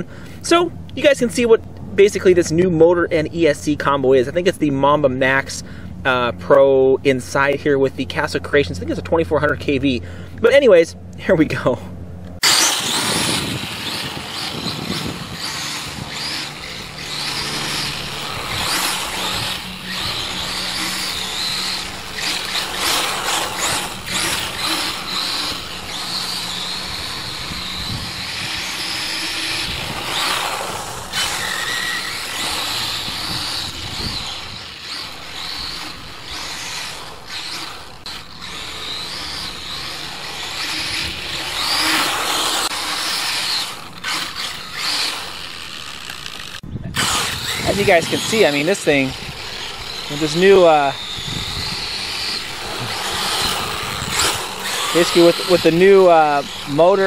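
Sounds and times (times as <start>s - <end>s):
tyre and ground noise: 6.4s - 57.0s
rc car motor whine: 12.3s - 57.0s.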